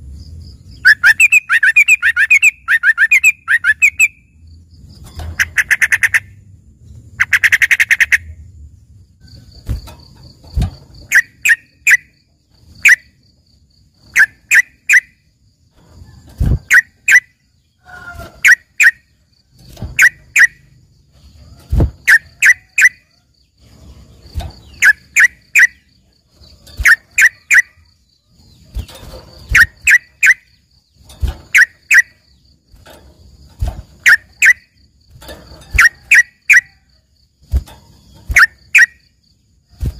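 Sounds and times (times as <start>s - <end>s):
bulbul calling: 0.8s - 4.3s, 5.3s - 6.4s, 11.1s - 12.2s, 14.1s - 15.2s, 20.0s - 20.7s, 22.0s - 23.0s, 24.6s - 25.9s, 26.8s - 27.8s, 28.8s - 30.6s, 31.5s - 32.2s, 34.0s - 34.7s, 35.7s - 36.8s, 38.1s - 39.1s.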